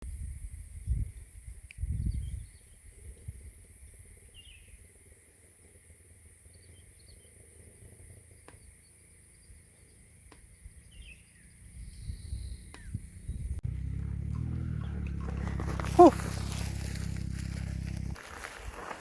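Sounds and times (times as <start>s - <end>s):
bird chirps: 8.5s - 13.3s
low rumble: 13.3s - 18.2s.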